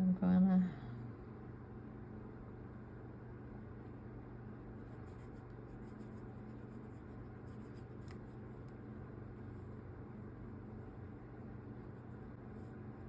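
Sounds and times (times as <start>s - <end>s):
steady low hum: 0.0s - 13.0s
hands rustling and scratching: 4.8s - 8.8s.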